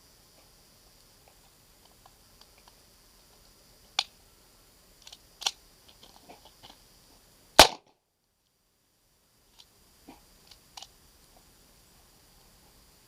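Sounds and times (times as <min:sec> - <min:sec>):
pistol metallic clicks: 0:07.6 - 0:07.8
sharp gunshot: 0:07.6 - 0:07.9.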